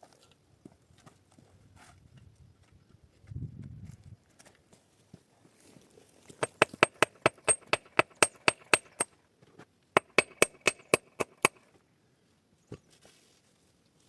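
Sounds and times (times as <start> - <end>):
hammer striking nail: 6.4 - 9.1, 10.0 - 11.6.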